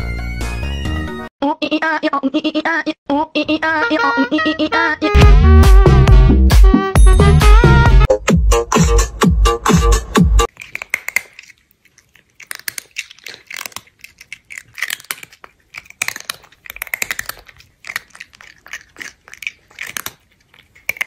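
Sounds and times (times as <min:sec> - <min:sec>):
electronic dance music: 0:05.2 - 0:10.5
crunchy chewing of fried food: 0:10.4 - 0:21.0.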